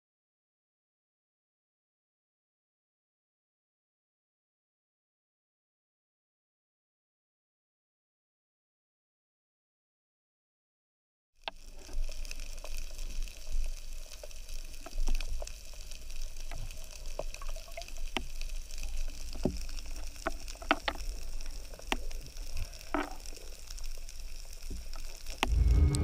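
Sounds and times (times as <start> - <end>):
low underwater rumble: 25.4 - 26.0
water rushing burst: 25.4 - 26.0.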